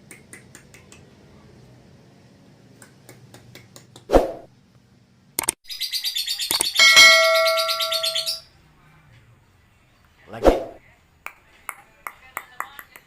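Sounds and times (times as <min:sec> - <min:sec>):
lovebird chattering trill: 0:05.7 - 0:08.4
bell-like ringing tone: 0:06.8 - 0:08.4.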